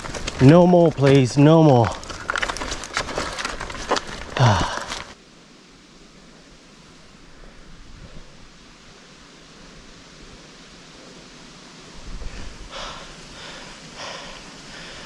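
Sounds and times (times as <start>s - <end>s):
bike riding on dirt track: 0.0s - 5.2s
person breathing hard: 4.3s - 5.2s, 12.2s - 15.0s.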